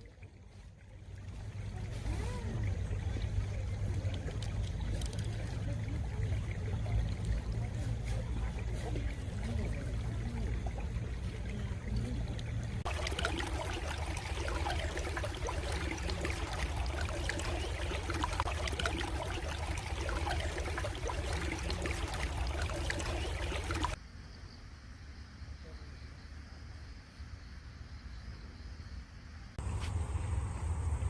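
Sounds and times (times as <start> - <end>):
stream water running: 0.0 - 24.0.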